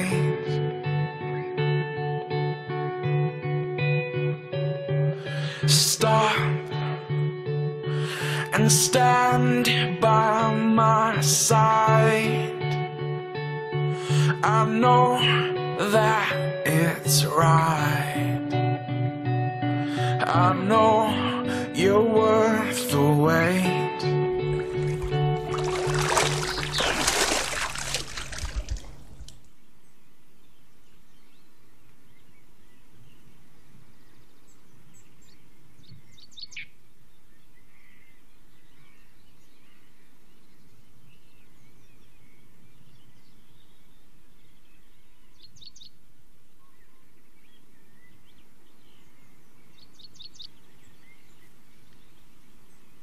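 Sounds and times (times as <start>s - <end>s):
song music: 0.0s - 28.4s
small bird chirping: 28.6s - 46.0s, 46.6s - 53.0s
outdoor background hiss: 29.0s - 53.0s.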